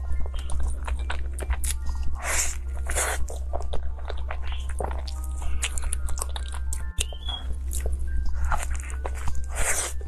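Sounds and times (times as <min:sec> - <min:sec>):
chewing soft cake: 0:00.0 - 0:10.0.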